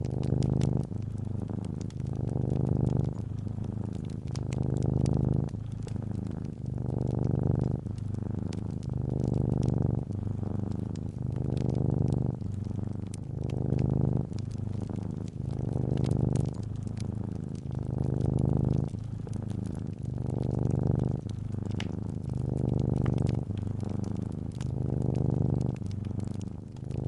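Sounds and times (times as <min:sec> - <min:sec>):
cat purring: 0:00.0 - 0:27.0
fireplace crackling: 0:00.0 - 0:27.0.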